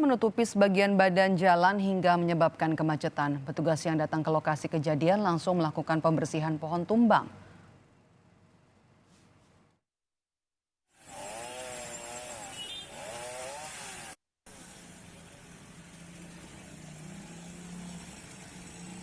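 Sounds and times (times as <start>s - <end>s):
chainsaw cutting a tree: 10.9s - 19.0s.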